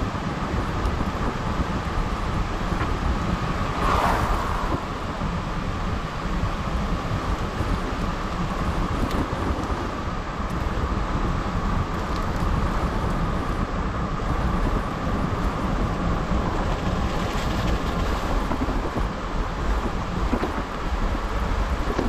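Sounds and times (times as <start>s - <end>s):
gusty wind buffeting microphone: 0.0s - 22.0s
rain: 0.0s - 22.0s
heavy surf: 3.3s - 5.9s.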